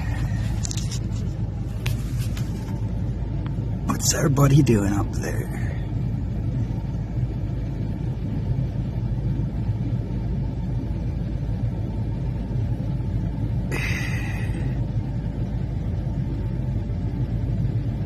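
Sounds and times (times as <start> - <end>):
road noise: 0.0 - 9.0
car engine drone: 0.0 - 18.0.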